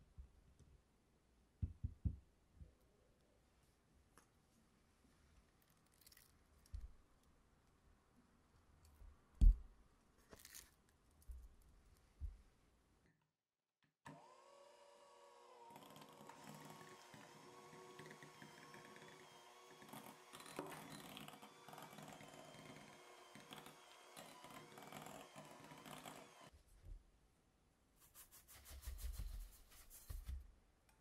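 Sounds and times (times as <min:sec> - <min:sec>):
electric hand mixer whine: 0:14.1 - 0:26.5.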